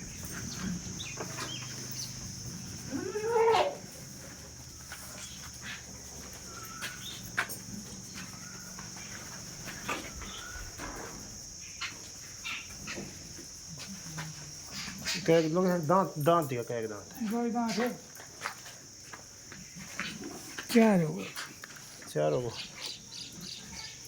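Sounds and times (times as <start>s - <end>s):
crickets chirping: 0.0s - 24.0s
goat bleating: 2.9s - 3.9s.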